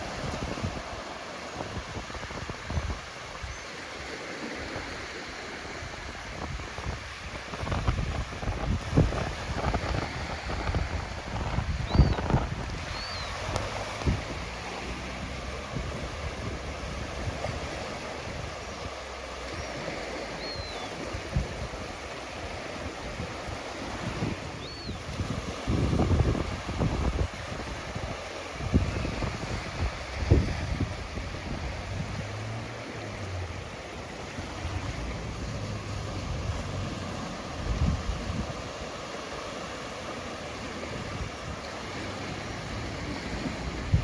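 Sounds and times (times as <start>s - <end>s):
ocean waves washing on beach: 0.0s - 44.0s
wind buffeting microphone: 0.0s - 44.0s
high whistling calls: 11.8s - 13.8s, 19.5s - 21.1s, 24.5s - 25.1s.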